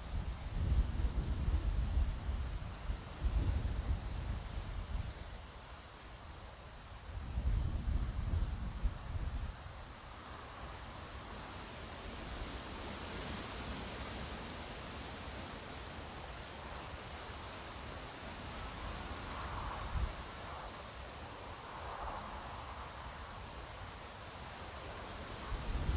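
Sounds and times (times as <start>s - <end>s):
wind gusting on microphone: 0.0s - 5.4s, 7.0s - 9.8s, 18.7s - 20.8s, 25.2s - 25.9s
cricket chirping: 0.0s - 25.9s
rustling leaves: 0.0s - 25.9s.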